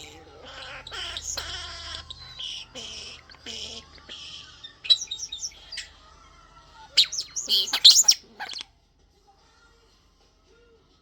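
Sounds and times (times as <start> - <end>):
starling chirps and whistles: 0.0 - 6.0, 6.9 - 8.6.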